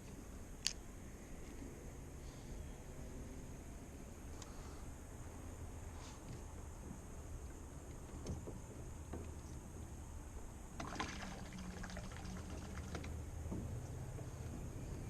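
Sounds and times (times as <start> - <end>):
water splashing and trickling: 10.7 - 13.6.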